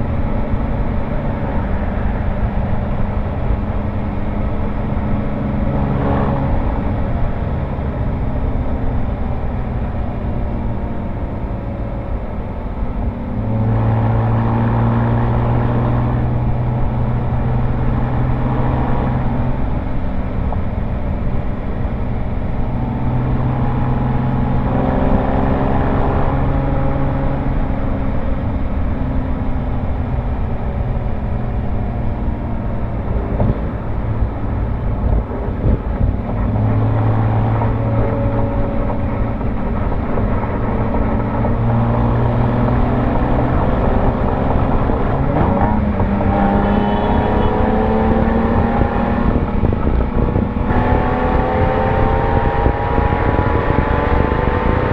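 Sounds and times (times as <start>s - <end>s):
car exhaust engine note: 0.0s - 54.9s.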